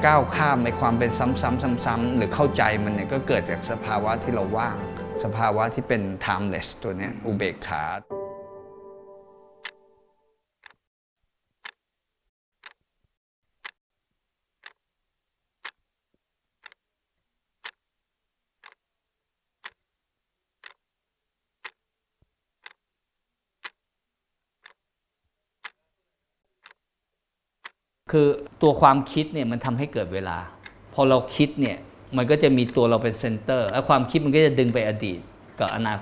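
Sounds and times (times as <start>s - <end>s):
clock ticking: 0.0s - 6.8s, 9.6s - 9.8s, 12.6s - 12.8s, 13.6s - 13.8s, 14.6s - 14.8s, 16.6s - 16.8s, 17.6s - 17.8s, 18.6s - 18.8s, 19.6s - 19.8s, 20.6s - 20.8s, 21.6s - 21.8s, 22.6s - 22.8s, 23.6s - 23.8s, 24.6s - 24.8s, 25.6s - 25.8s, 26.6s - 26.8s, 27.6s - 28.8s, 29.5s - 29.9s, 30.6s - 36.0s.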